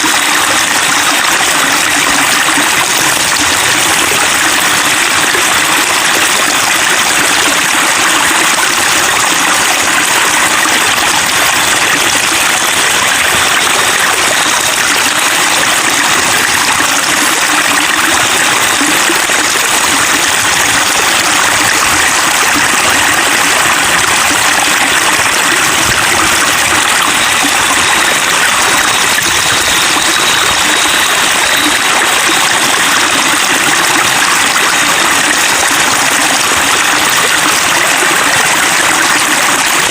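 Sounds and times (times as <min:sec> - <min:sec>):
water trickling over stones: 0:00.0 - 0:39.9.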